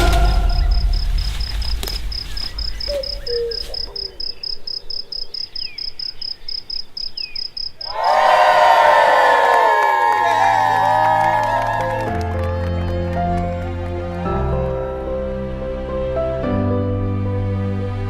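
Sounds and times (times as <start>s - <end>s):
music: 0.0s - 2.1s, 10.2s - 18.0s
cricket chirping: 0.0s - 8.4s
faint bird calls: 2.3s - 8.0s.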